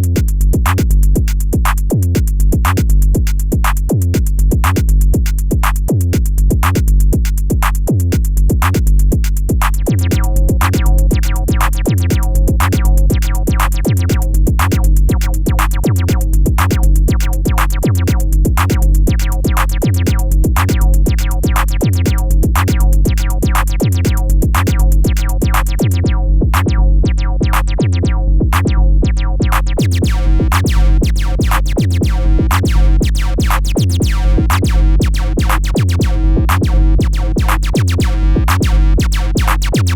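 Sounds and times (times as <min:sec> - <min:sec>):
deep sustained synth bass: 0:00.0 - 0:39.9
fast drum machine pattern: 0:00.0 - 0:39.9
high synth notes: 0:29.2 - 0:39.9.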